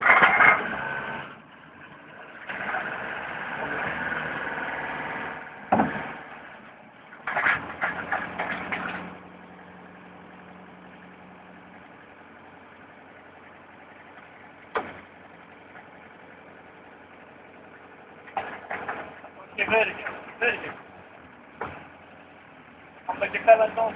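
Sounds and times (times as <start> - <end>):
forklift engine idling: 0.0 - 23.9
rattling knocks: 5.7 - 6.2
loud clunk: 5.7 - 6.3, 7.2 - 9.2, 14.7 - 15.1, 18.2 - 20.8, 21.6 - 21.9.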